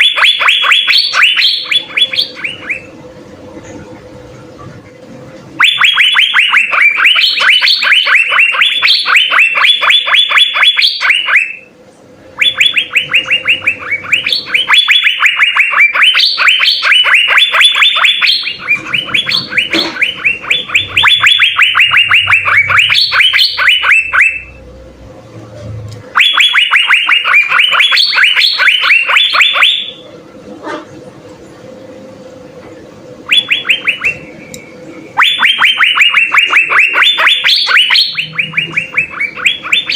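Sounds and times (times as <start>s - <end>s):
bird singing rattling phrases: 0.0s - 3.0s, 5.6s - 11.7s, 12.4s - 24.6s, 26.1s - 30.0s, 33.2s - 39.9s
faint steady hum: 0.0s - 39.9s.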